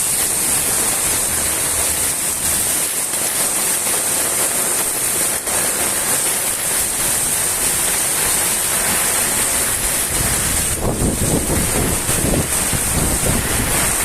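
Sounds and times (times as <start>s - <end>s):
heavy rain falling: 0.0s - 14.0s
wind buffeting microphone: 9.2s - 14.0s.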